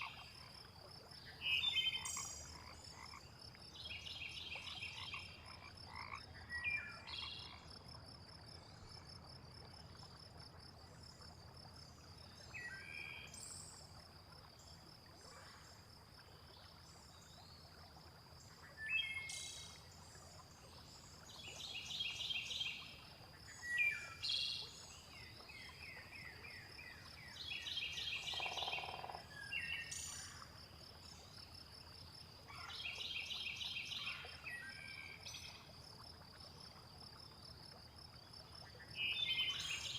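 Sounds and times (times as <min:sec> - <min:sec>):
frogs calling in pulsed bursts: 0:00.0 - 0:15.1, 0:22.4 - 0:32.7.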